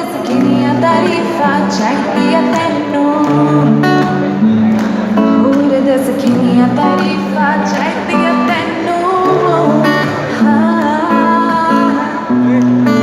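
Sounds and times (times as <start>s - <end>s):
strummed acoustic guitar: 0.0s - 13.0s
person singing: 5.3s - 13.0s.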